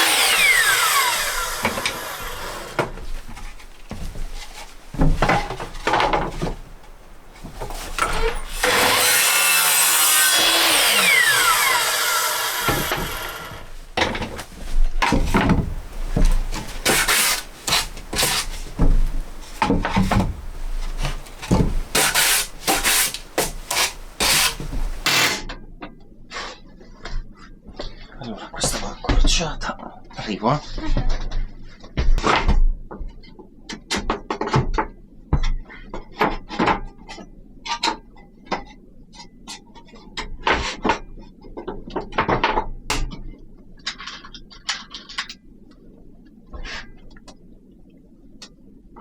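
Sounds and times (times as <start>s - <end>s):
loud rasping on wood: 0.0s - 2.9s, 7.6s - 13.8s, 15.2s - 25.4s
back-and-forth strokes on wood: 0.0s - 25.4s
knocks and scrapes on wood: 0.1s - 25.4s.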